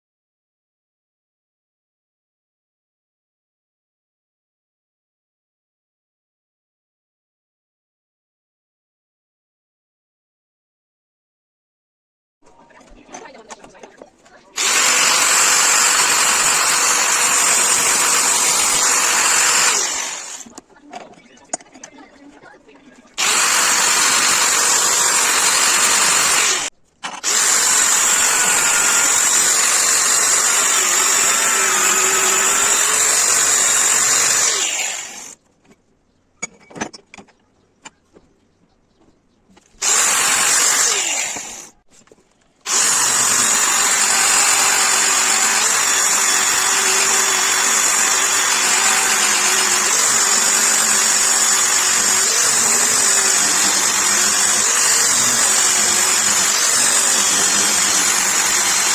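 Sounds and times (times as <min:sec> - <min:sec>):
electric power tool running: 0:14.6 - 0:20.5, 0:23.2 - 0:35.4, 0:39.8 - 0:41.7, 0:42.7 - 0:58.9.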